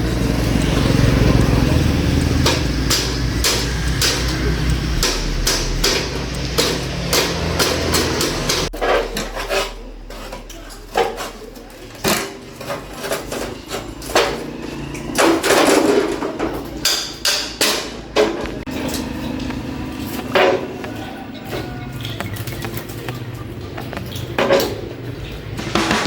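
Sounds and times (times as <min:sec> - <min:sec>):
hammer striking metal: 0:00.3 - 0:09.7, 0:16.8 - 0:19.0, 0:25.6 - 0:26.0.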